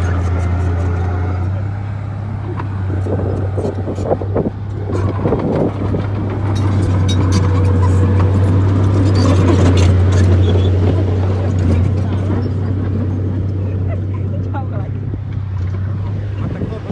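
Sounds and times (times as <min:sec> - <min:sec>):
bulldozer diesel engine drone: 0:00.0 - 0:16.9
knocks and clatter: 0:02.5 - 0:13.4.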